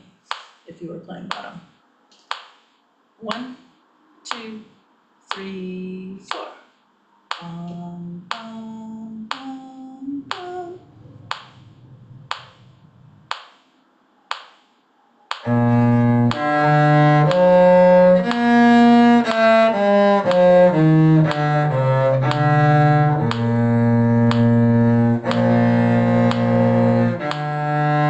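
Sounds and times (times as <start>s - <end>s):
sharp clicks keeping beat: 1.3s - 2.7s, 4.3s - 4.5s, 6.3s - 6.6s, 7.3s - 11.7s, 12.3s - 13.7s, 14.3s - 27.9s
cello bowed melody: 15.4s - 28.0s.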